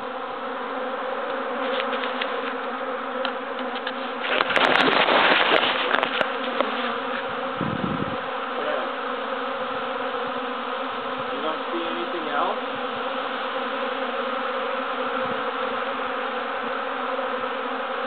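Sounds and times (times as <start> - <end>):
bees buzzing: 0.0 - 18.0
crackling rush: 3.6 - 7.2.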